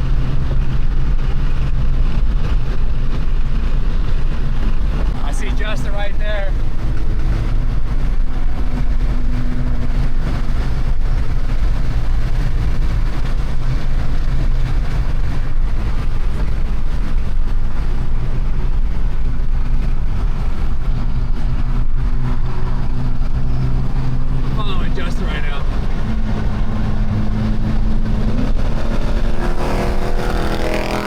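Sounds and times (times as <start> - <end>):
car engines droning in traffic: 0.0 - 31.0.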